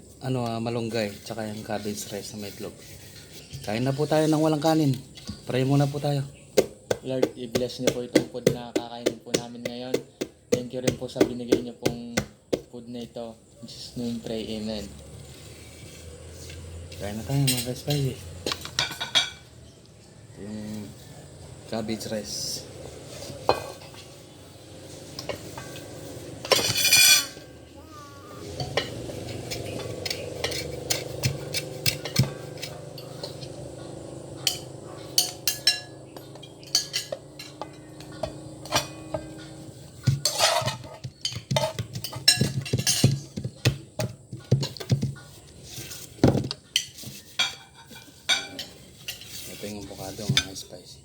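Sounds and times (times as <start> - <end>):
cutlery clinking on a plate: 17.4 - 19.5, 25.3 - 27.5, 28.6 - 33.5, 34.5 - 43.5, 46.7 - 49.3
cutlery clatter: 25.2 - 27.5, 28.6 - 33.5, 34.5 - 43.4, 46.8 - 49.4.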